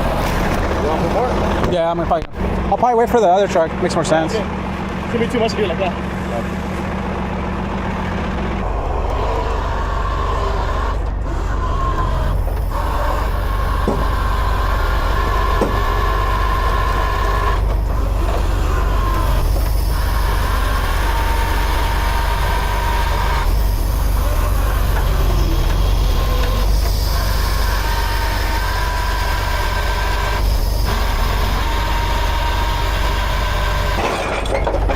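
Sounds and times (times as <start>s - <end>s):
diesel engine running: 0.0s - 34.9s
thin whine: 8.6s - 34.2s.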